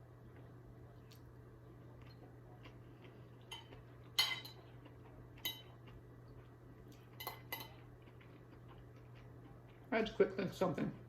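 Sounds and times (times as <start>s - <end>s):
metal fork clinking on dish: 3.5s - 4.6s, 7.2s - 7.8s.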